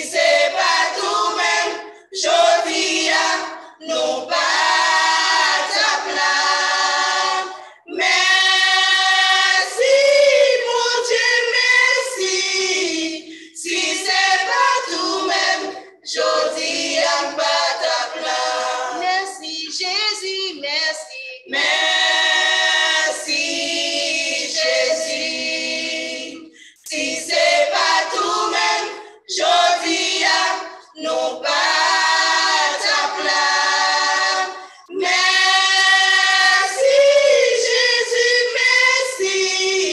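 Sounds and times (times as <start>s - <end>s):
gospel choir singing a hymn: 0.0s - 39.9s.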